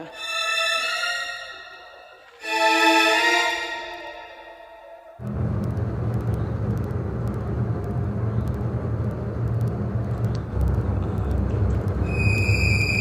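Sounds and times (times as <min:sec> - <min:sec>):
violin music: 0:00.0 - 0:04.8
faint clicks: 0:05.2 - 0:13.0
steady low rumble: 0:05.2 - 0:13.0.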